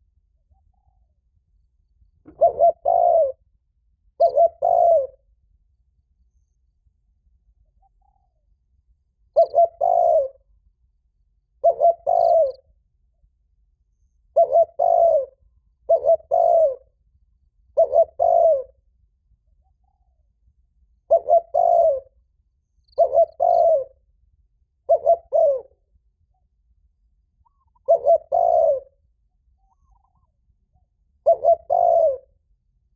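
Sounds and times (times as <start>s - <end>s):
dove cooing: 2.3s - 3.4s, 4.2s - 5.2s, 9.4s - 10.4s, 11.6s - 12.6s, 14.3s - 16.9s, 17.7s - 18.8s, 21.1s - 22.2s, 23.0s - 24.0s, 24.9s - 25.8s, 27.4s - 29.0s, 29.6s - 30.3s, 31.2s - 32.3s.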